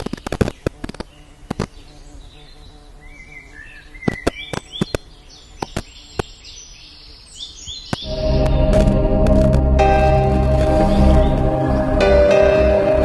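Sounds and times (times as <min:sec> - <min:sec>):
birds chirping: 0:00.0 - 0:09.2, 0:09.8 - 0:13.0
ambient music with held tones: 0:08.0 - 0:13.0.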